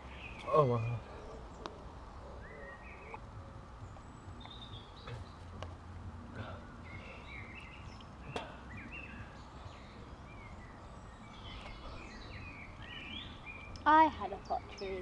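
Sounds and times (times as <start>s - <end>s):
birds chirping and twittering: 0.0s - 15.0s.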